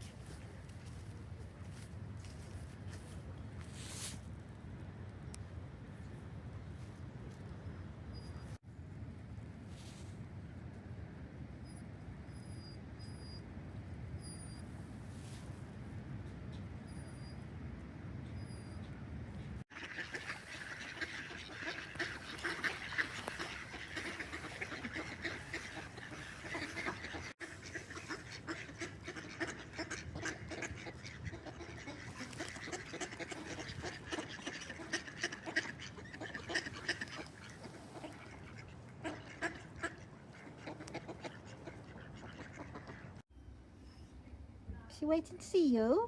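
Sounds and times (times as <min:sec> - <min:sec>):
ducks quacking: 0:19.7 - 0:43.2.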